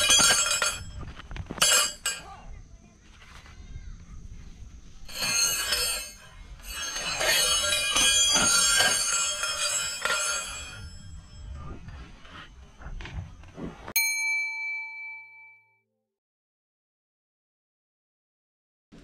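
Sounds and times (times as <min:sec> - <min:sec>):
bell-like metallic jingling: 0:05.1 - 0:12.0.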